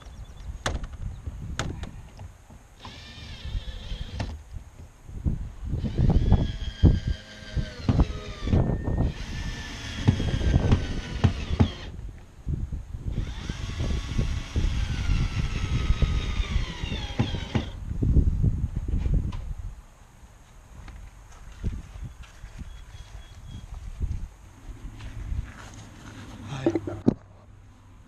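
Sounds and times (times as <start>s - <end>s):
power drill whining: 2.8s - 4.4s, 5.8s - 12.0s, 13.1s - 17.8s
parts knocking and clattering: 26.6s - 27.3s.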